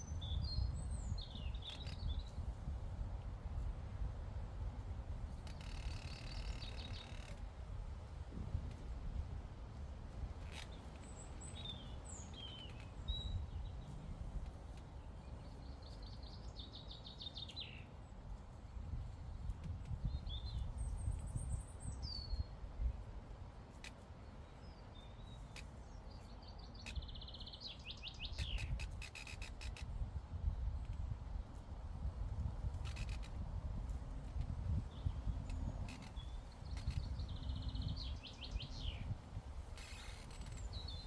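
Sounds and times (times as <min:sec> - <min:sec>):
low wind rumble: 0:00.0 - 0:05.5, 0:07.7 - 0:10.4, 0:29.8 - 0:39.8
songbirds chirping: 0:00.0 - 0:07.5, 0:10.1 - 0:41.0.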